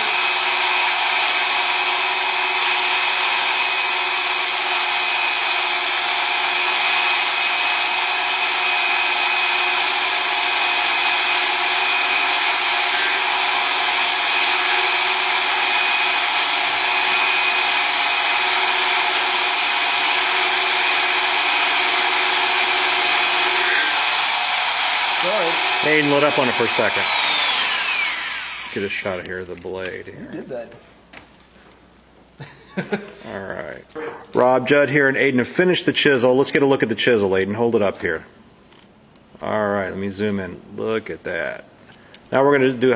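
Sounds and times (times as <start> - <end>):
electric motor whining: 0.0 - 29.3.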